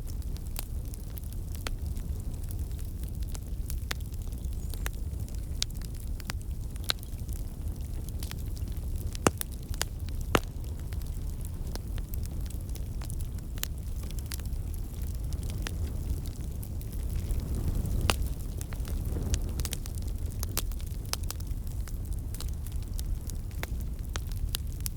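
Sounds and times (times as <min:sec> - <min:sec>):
low rumble of flames: 0:00.0 - 0:24.9
wood fire crackling: 0:00.0 - 0:24.9.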